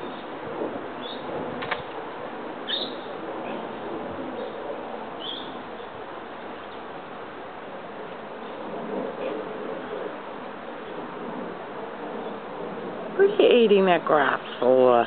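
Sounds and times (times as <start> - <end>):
outdoor background hiss: 0.0 - 15.0
small bird chirping: 5.2 - 5.9.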